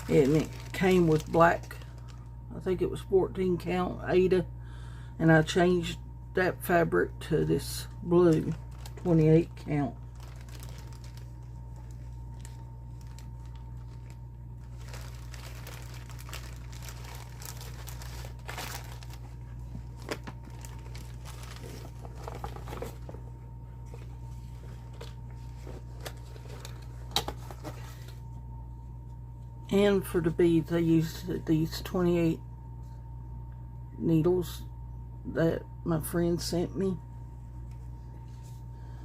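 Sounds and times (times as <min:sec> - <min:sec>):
rustling and crinkling: 0:00.0 - 0:02.3, 0:07.9 - 0:28.4
steady low hum: 0:00.0 - 0:39.0.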